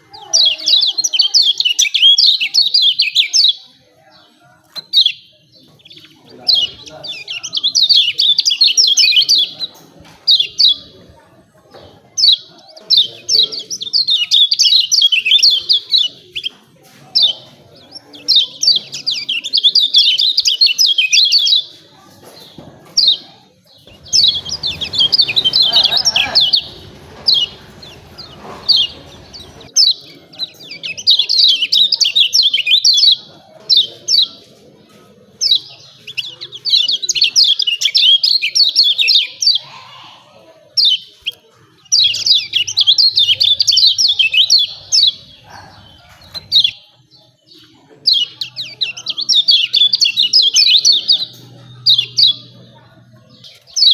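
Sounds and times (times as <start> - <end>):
bird chirping rapidly: 23.9 - 29.9.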